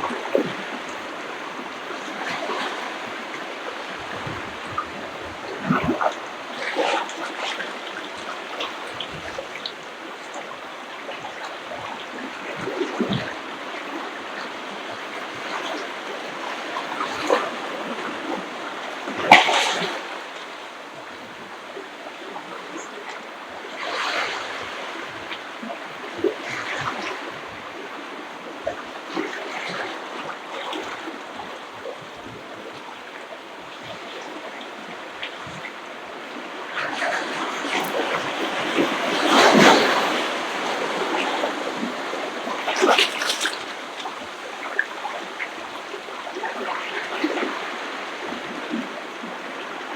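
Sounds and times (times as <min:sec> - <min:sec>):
ocean waves splashing on beach: 0:00.0 - 0:49.9.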